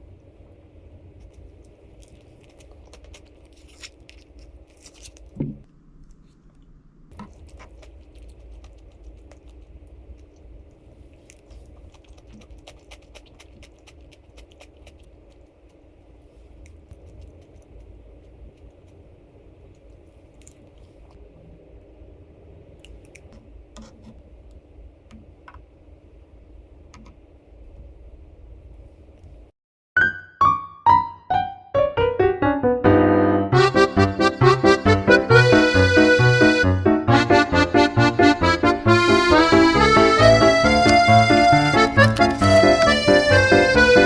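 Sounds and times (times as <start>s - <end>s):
low room hum: 0.0s - 29.6s, 31.3s - 44.0s
person chewing and crunching: 1.2s - 5.4s, 7.1s - 15.9s, 19.6s - 21.2s, 39.1s - 44.0s.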